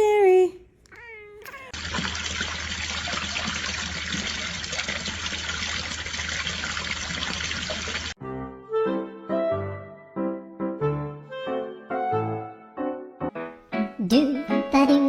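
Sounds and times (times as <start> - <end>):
water running: 0.9 - 8.2.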